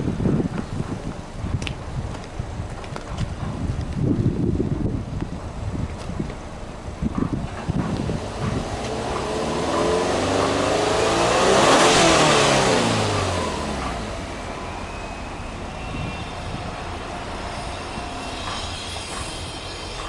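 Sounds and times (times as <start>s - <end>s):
car engine revving then idling: 6.8s - 17.4s.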